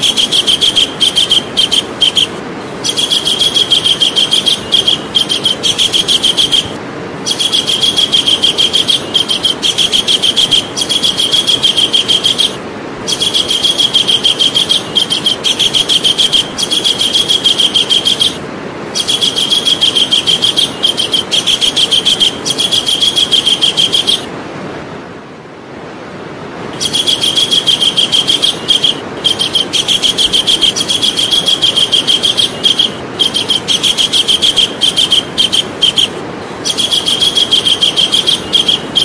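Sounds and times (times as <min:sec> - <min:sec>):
kingfisher calling: 0:00.0 - 0:24.3, 0:26.8 - 0:39.0.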